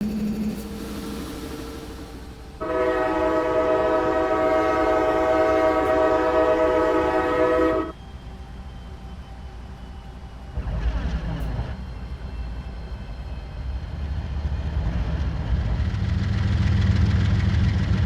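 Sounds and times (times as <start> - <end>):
locomotive horn blast: 2.6 - 7.9.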